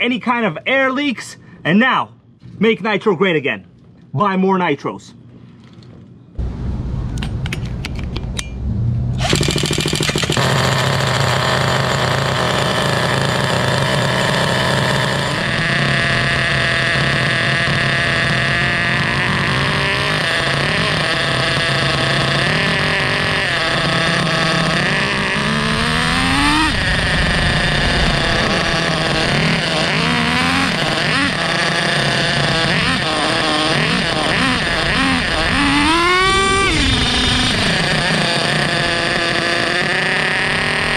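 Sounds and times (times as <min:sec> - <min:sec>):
model truck engine revving: 0:09.2 - 0:40.9.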